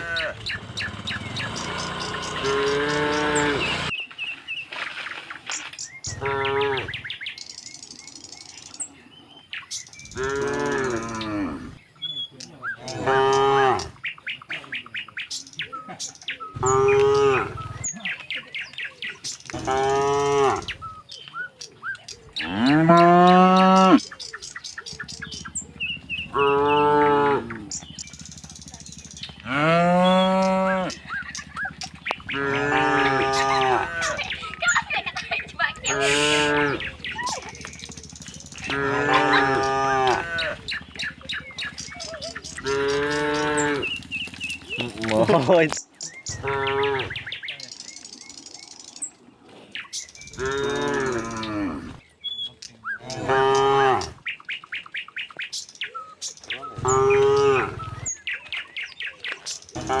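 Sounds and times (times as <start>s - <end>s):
cattle mooing: 0.0s - 3.9s, 10.2s - 11.8s, 12.9s - 13.9s, 16.6s - 17.6s, 19.5s - 20.8s, 22.4s - 24.0s, 25.2s - 28.8s, 29.4s - 45.7s, 46.4s - 47.2s, 50.4s - 52.0s, 53.1s - 54.2s, 56.8s - 58.1s, 59.8s - 60.0s
small birds chirping: 0.0s - 60.0s.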